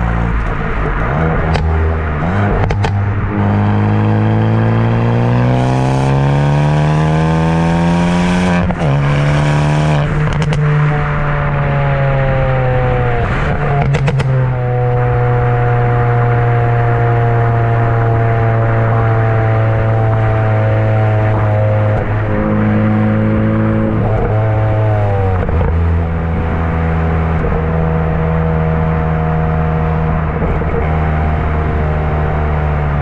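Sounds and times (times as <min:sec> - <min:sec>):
car exhaust accelerating hard: 0:00.0 - 0:33.0
exhaust pops and bangs: 0:01.3 - 0:01.8, 0:02.5 - 0:03.0, 0:13.8 - 0:14.4.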